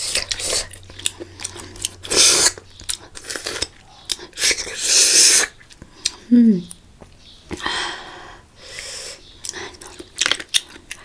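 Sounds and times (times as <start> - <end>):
wet chewing: 0.0 - 7.7, 8.7 - 11.0
hissing slurps: 2.0 - 2.6, 4.3 - 5.6.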